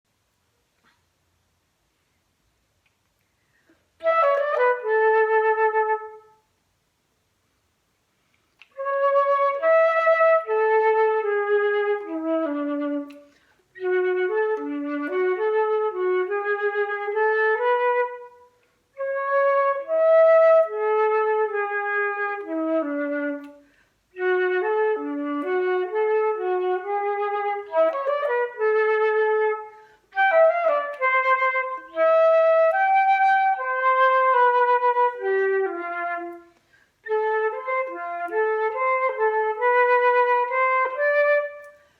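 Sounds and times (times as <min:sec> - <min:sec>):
recorder playing melody: 0:04.0 - 0:06.4, 0:08.8 - 0:41.8.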